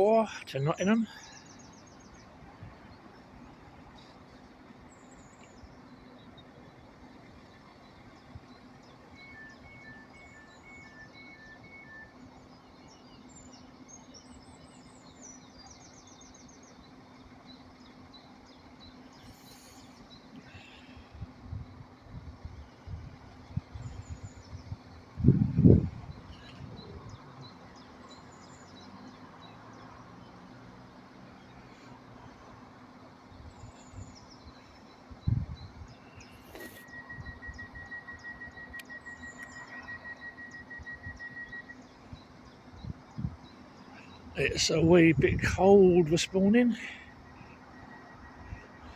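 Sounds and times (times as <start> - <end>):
birds chirping: 0.0 - 48.9
outdoor background noise: 0.0 - 48.9
alternating two-tone beep: 36.6 - 41.8.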